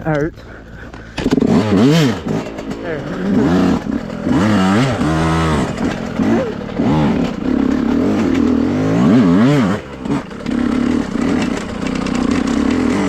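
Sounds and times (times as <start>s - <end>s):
dirt bike engine revving: 0.1s - 13.0s.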